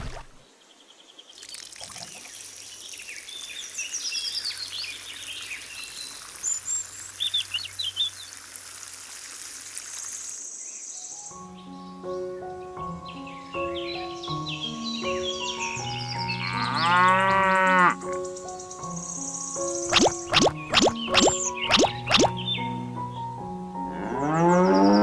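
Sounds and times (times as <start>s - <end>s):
running water: 0.0s - 0.4s, 1.3s - 10.5s, 19.9s - 22.4s
small birds chirping: 0.0s - 8.5s, 18.1s - 22.8s.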